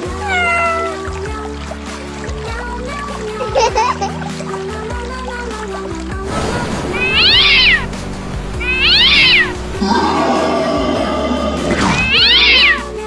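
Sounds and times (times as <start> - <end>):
cat meowing: 0.0 - 1.3, 6.4 - 13.0
background music: 0.0 - 13.0.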